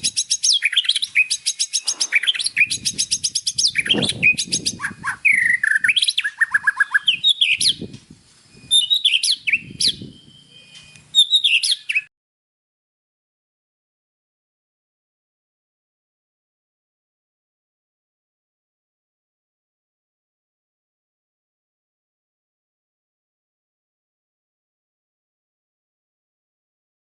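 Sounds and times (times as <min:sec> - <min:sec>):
bird singing trills and whistles: 0:00.0 - 0:12.1.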